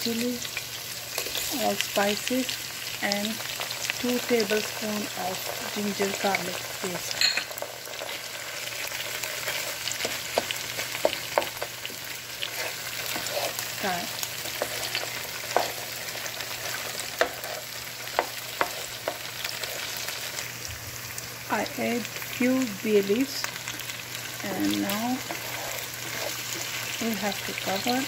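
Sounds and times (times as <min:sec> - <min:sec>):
vegetables sizzling in oil: 0:00.0 - 0:28.0
wooden spoon stirring and tapping pan: 0:08.9 - 0:13.6, 0:14.2 - 0:19.8.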